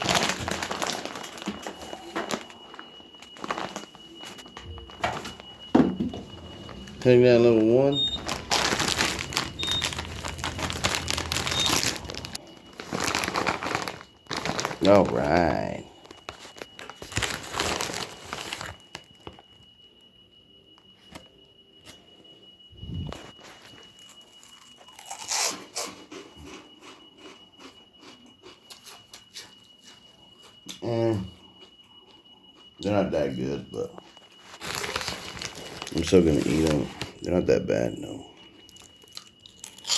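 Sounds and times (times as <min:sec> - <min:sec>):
plastic snack bag rustling: 0:00.0 - 0:19.5, 0:34.4 - 0:37.4
chewing crunchy snack: 0:06.3 - 0:15.0, 0:24.0 - 0:29.5, 0:38.7 - 0:39.9.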